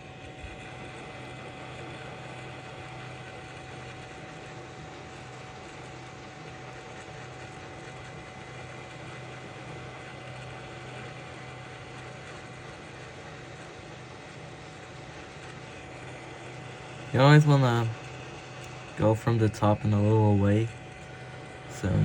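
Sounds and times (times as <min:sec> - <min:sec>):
low fan hum: 0:00.0 - 0:22.0
hot air station blowing: 0:15.6 - 0:22.0.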